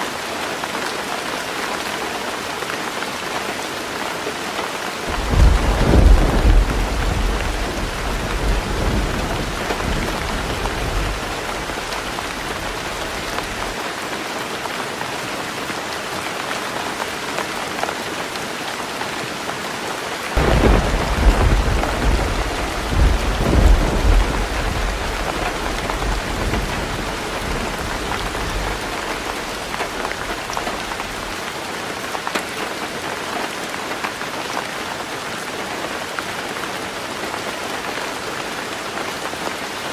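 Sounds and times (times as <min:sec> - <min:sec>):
heavy rain drumming on a roof: 0:00.0 - 0:39.9
rolling thunder: 0:05.1 - 0:13.7, 0:20.4 - 0:31.3.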